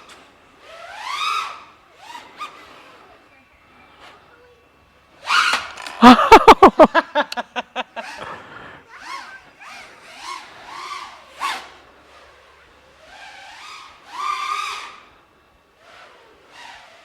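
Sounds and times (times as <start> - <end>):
drone motors whining: 5.2 - 15.1.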